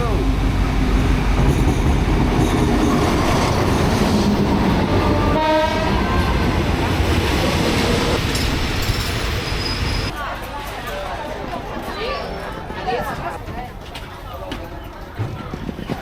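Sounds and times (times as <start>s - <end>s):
diesel train rumbling on rails: 0.0s - 16.0s
train horn blast: 4.8s - 6.5s.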